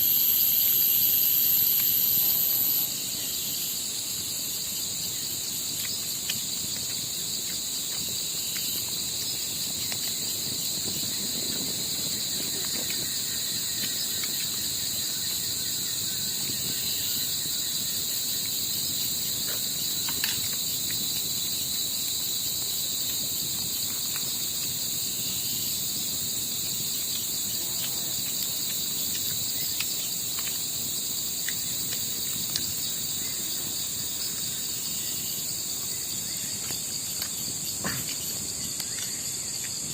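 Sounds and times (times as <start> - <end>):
crickets and insects droning: 0.0 - 39.9
faint ticks: 26.7 - 32.7.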